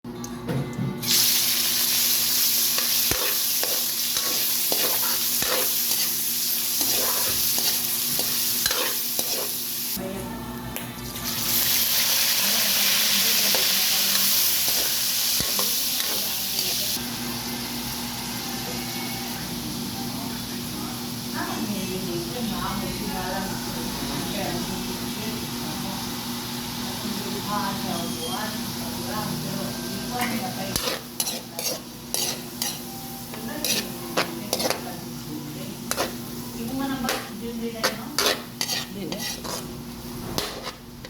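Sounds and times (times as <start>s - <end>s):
food sizzling in a pan: 1.0s - 10.0s, 11.2s - 41.0s
utensil scraping a pan: 6.8s - 9.6s, 30.7s - 32.8s, 33.6s - 34.9s, 37.8s - 40.9s.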